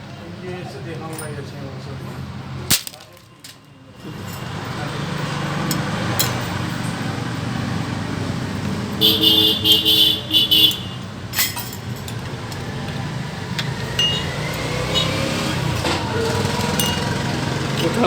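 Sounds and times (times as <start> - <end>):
traffic rumble: 0.0 - 18.0
metallic clink: 5.6 - 7.0, 10.7 - 12.6, 13.6 - 15.0, 15.8 - 18.0
vehicle horn honking: 9.0 - 11.2, 14.1 - 15.5.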